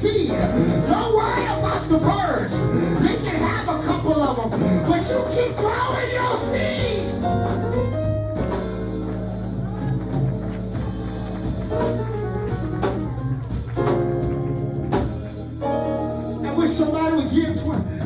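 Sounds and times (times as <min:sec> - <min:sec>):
person preaching: 0:00.0 - 0:07.3, 0:16.4 - 0:18.0
band playing: 0:00.0 - 0:18.0.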